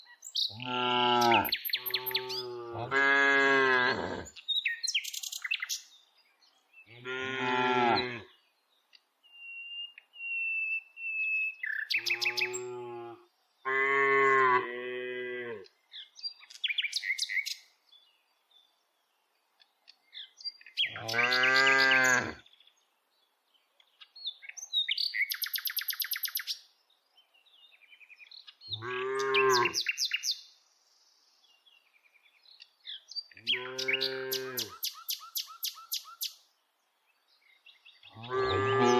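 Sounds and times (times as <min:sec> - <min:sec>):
small birds chirping: 0:00.0 - 0:02.7, 0:04.1 - 0:14.5, 0:15.6 - 0:38.9
cows mooing: 0:00.6 - 0:04.3, 0:07.0 - 0:08.3, 0:21.0 - 0:22.4, 0:33.6 - 0:34.7, 0:38.2 - 0:38.9.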